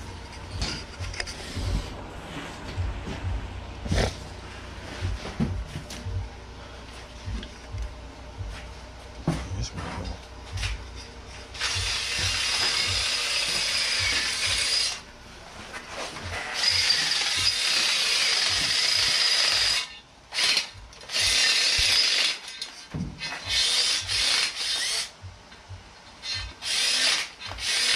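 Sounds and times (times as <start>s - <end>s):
power tool cutting into steel: 16.4s - 22.6s, 23.2s - 25.1s, 26.2s - 27.9s.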